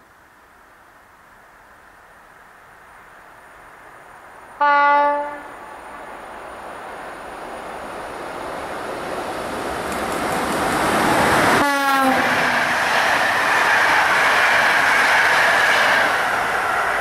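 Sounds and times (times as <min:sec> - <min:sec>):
train running noise: 0:00.3 - 0:17.0
train horn blast: 0:04.6 - 0:05.5, 0:11.6 - 0:12.6.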